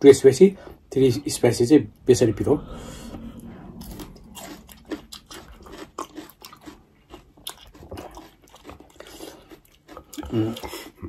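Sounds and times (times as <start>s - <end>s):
chewing crisp vegetable slices: 4.0s - 11.0s.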